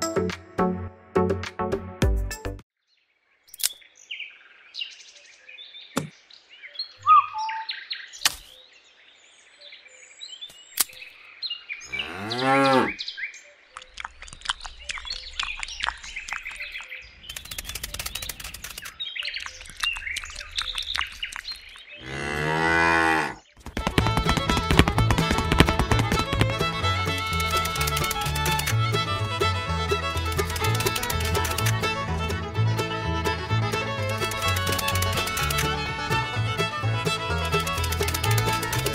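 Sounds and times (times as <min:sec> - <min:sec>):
bird chirps and clicks: 0:03.5 - 0:03.9, 0:10.4 - 0:11.3, 0:13.6 - 0:22.0, 0:25.6 - 0:28.8, 0:30.2 - 0:31.8, 0:34.1 - 0:35.7, 0:37.4 - 0:38.9
cow mooing: 0:11.9 - 0:13.0, 0:22.0 - 0:23.4.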